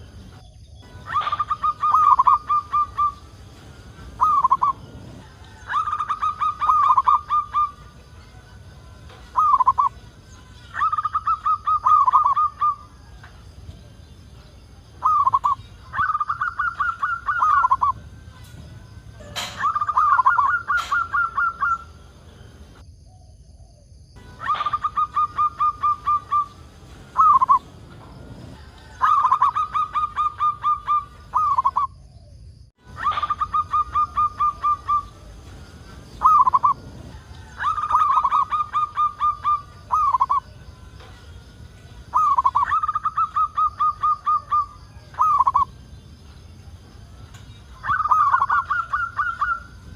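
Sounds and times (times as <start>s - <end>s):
dove cooing: 0.0s - 8.0s, 9.2s - 10.0s, 10.7s - 14.2s, 14.9s - 22.8s, 24.2s - 32.3s, 32.9s - 40.6s, 42.0s - 45.8s, 47.8s - 49.9s.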